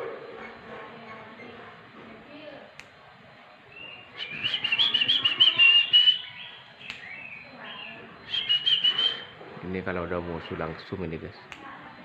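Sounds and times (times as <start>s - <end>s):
bird singing chattering whistles: 3.7s - 9.4s.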